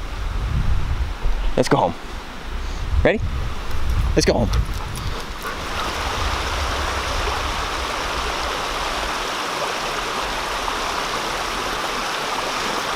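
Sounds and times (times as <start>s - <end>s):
low rumble: 3.3s - 10.7s
creek rushing over waterfall: 5.4s - 12.9s.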